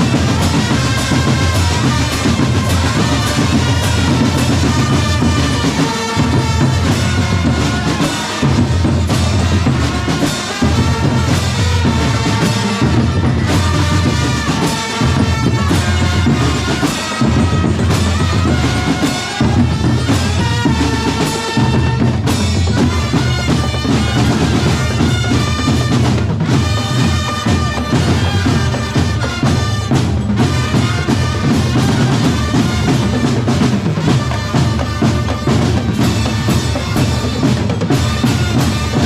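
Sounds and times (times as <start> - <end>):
steady drum beat: 0.0 - 39.0
wind instrument melody: 0.0 - 39.0.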